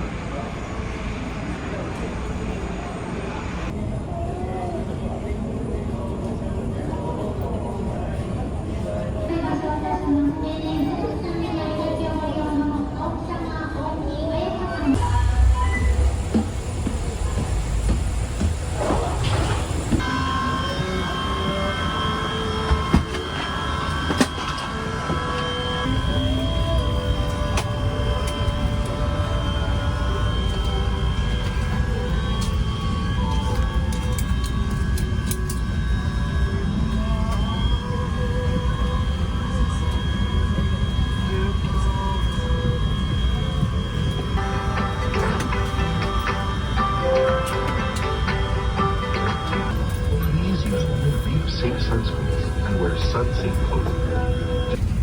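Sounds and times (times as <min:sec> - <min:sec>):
murmur of voices: 0:00.0 - 0:15.4, 0:20.4 - 0:54.8
electric rail car rumbling: 0:00.0 - 0:55.0
motor whine stepping in pitch: 0:15.0 - 0:55.0
music: 0:20.0 - 0:54.9.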